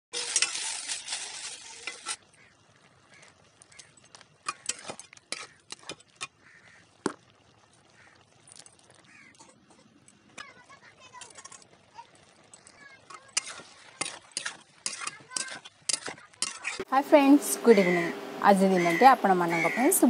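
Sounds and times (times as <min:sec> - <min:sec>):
spatula scraping a pan: 0:00.1 - 0:02.3, 0:03.2 - 0:06.6, 0:12.6 - 0:16.9
okra sizzling in a wok: 0:00.1 - 0:20.0.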